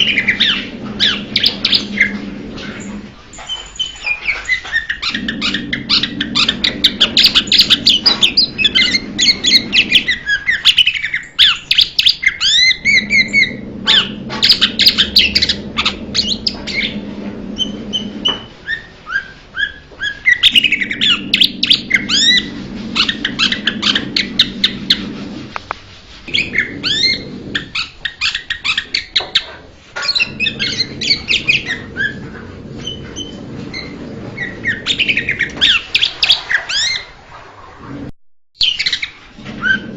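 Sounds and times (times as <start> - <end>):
bird chattering song: 3.4 - 25.0.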